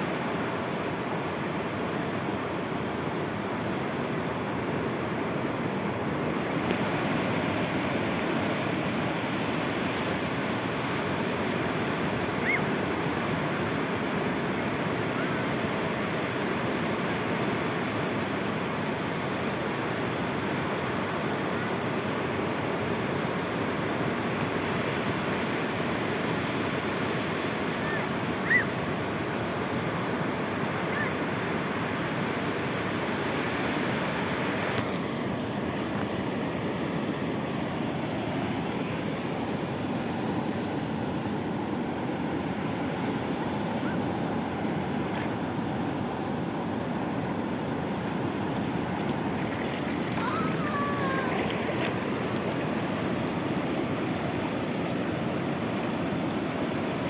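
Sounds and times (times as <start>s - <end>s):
sea waves washing on shore: 0.0s - 57.0s
faint high chirp: 27.8s - 28.7s.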